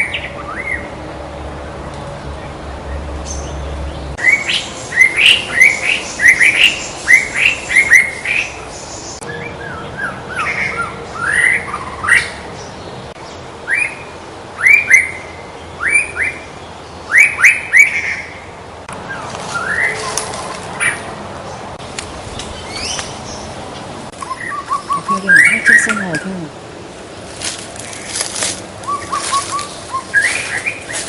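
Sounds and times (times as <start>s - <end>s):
bird singing whistled notes: 4.2s - 12.4s, 17.1s - 18.4s, 24.2s - 26.2s, 28.9s - 31.0s.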